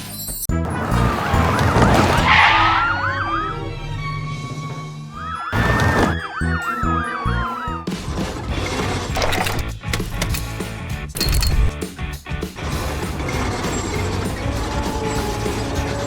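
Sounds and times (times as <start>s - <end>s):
background music: 0.0s - 16.0s
emergency vehicle siren: 0.7s - 7.9s.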